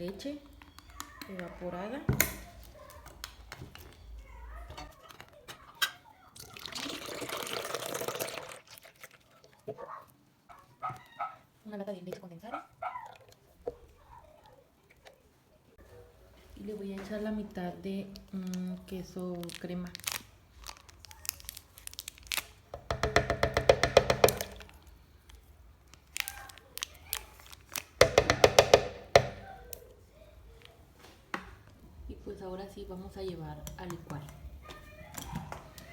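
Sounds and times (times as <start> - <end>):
milk pouring into container: 6.4 - 9.6
utensil tapping against container: 22.7 - 24.7, 28.0 - 29.4.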